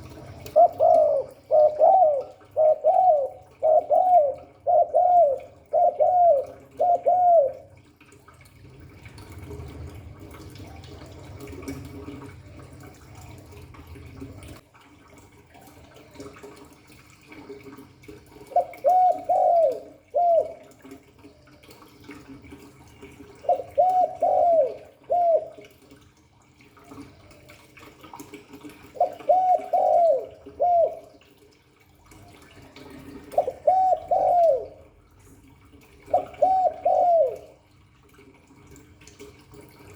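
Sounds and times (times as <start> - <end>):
dove cooing: 0.0 - 7.9, 18.3 - 21.0, 21.6 - 25.8, 28.8 - 31.4, 32.2 - 35.0, 36.0 - 37.7.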